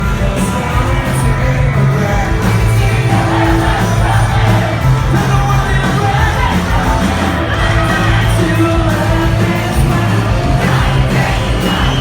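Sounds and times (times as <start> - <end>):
crowd singing and yelling: 0.0 - 12.0
live rock band playing: 0.0 - 12.0
shouted vocal: 2.8 - 12.0.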